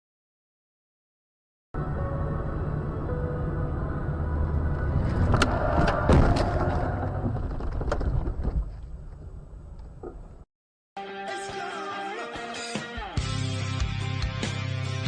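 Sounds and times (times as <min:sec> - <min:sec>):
car engine and road rumble: 0:01.8 - 0:10.5.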